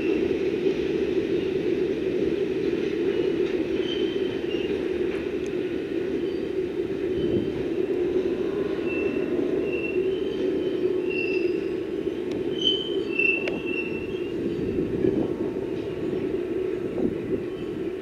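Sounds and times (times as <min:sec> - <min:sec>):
freight train rumbling: 0:00.0 - 0:18.0
high-pitched wheel squeals: 0:08.8 - 0:11.7, 0:12.5 - 0:14.7.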